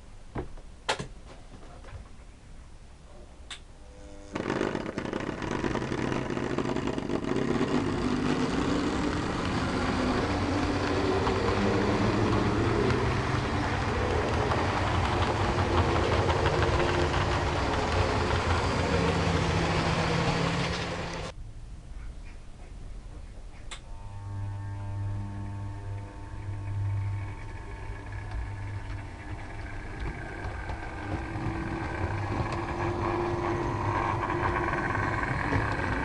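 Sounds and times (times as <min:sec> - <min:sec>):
model diesel locomotive engine: 0:03.8 - 0:21.4, 0:23.7 - 0:36.0.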